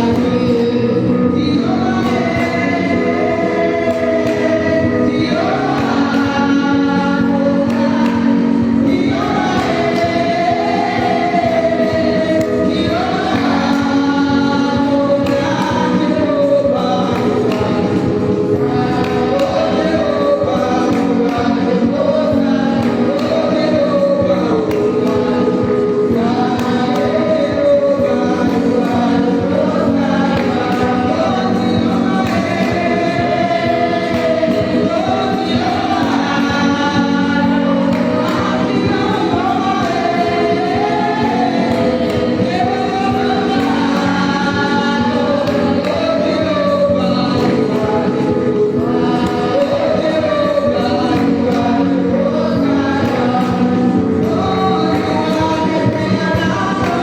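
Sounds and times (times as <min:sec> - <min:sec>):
choir singing gospel: 0:00.0 - 0:57.0
held accompaniment: 0:00.0 - 0:57.0.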